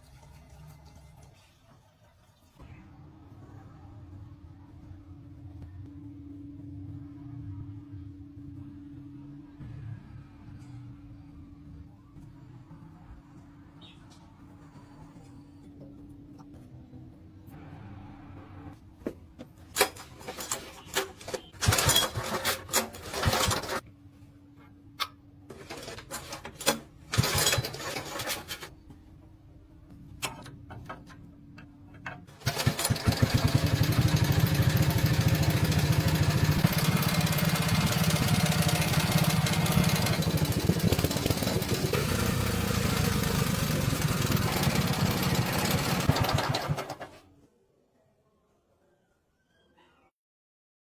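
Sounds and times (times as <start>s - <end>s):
motorcycle engine starting and running: 19.7s - 23.8s, 25.0s - 28.9s, 30.1s - 47.2s.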